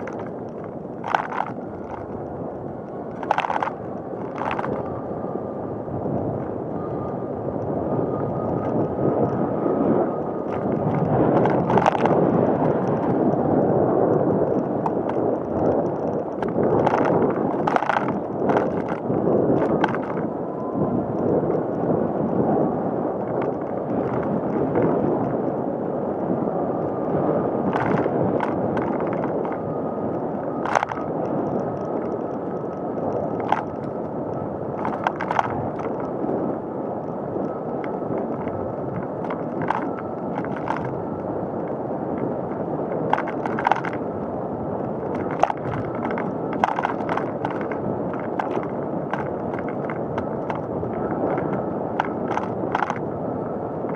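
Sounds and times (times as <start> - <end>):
bike clicks and rattles: 0.0 - 5.1, 7.5 - 20.4, 23.2 - 25.6, 27.6 - 36.2, 37.0 - 53.1
bicycle tyre road noise: 0.0 - 53.9.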